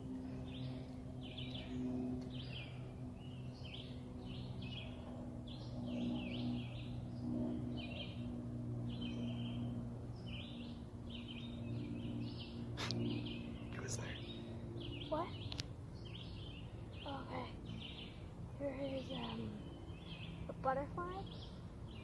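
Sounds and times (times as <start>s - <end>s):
low drone: 0.0s - 22.0s
songbirds chirping: 0.0s - 22.0s.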